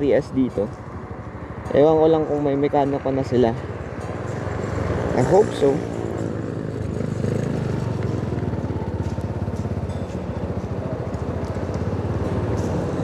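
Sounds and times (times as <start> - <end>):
motorcycle engine running: 3.9 - 13.0.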